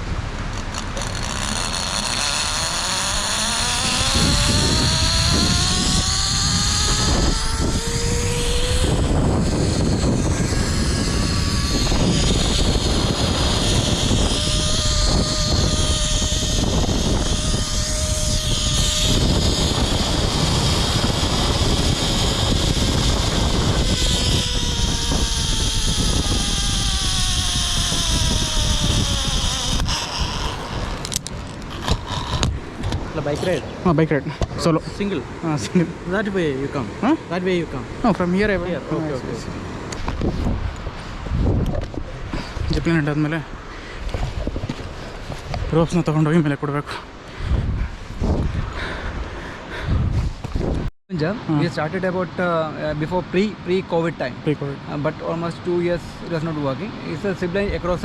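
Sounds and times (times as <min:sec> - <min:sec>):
wind buffeting the microphone: 0:00.0 - 0:58.0
zipline pulleys whining on cable: 0:00.5 - 0:33.6.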